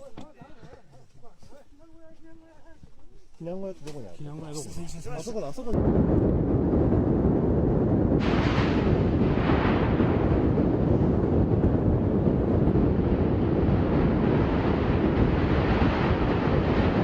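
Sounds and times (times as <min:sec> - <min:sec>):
steady low rumble: 0:05.7 - 0:17.0
wind buffeting microphone: 0:05.7 - 0:17.0.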